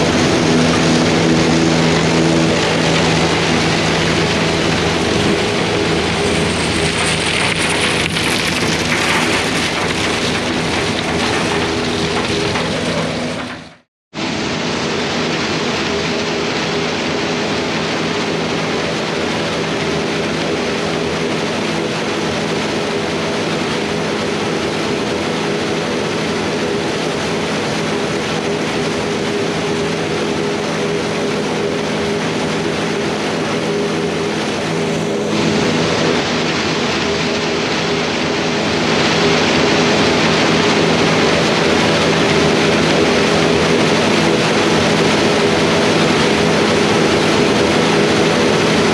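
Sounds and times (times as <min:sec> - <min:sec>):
diesel tractor engine running: 0:00.0 - 0:13.9.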